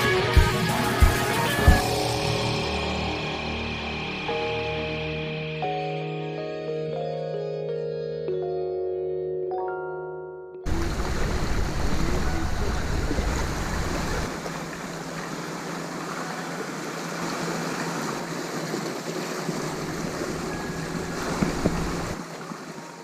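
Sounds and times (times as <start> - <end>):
wind buffeting microphone: 10.7 - 14.4, 19.5 - 22.2
sea surf washing: 10.7 - 23.0.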